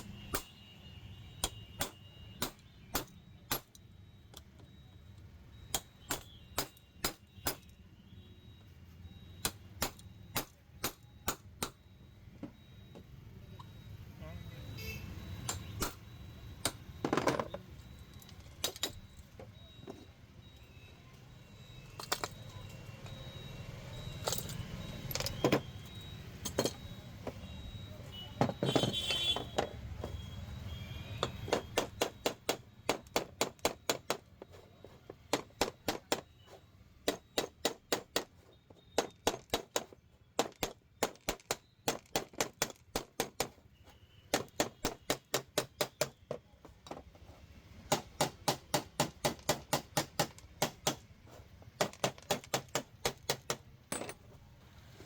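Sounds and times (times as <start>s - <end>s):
sharp evenly spaced taps: 0.0s - 0.6s, 1.4s - 4.7s, 5.6s - 7.8s, 9.3s - 13.8s, 15.4s - 17.0s, 31.1s - 43.6s, 44.3s - 46.4s, 47.9s - 53.7s
knocks and handling noise: 9.4s - 13.7s, 15.4s - 20.7s, 21.8s - 23.2s, 24.0s - 55.0s.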